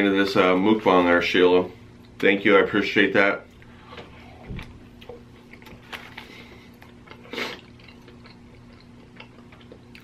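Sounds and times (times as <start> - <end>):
faint steady hum: 0.0 - 10.0
wet chewing: 4.6 - 10.0.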